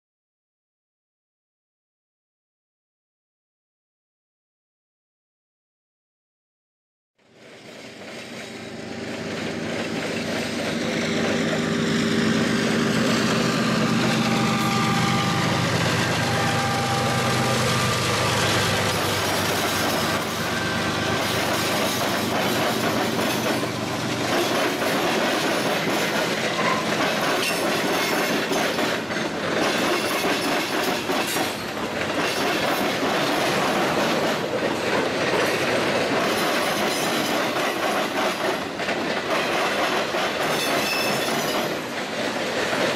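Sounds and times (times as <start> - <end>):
diesel locomotive engine passing: 7.2 - 42.9
wheels clattering over rail joints: 15.5 - 42.9.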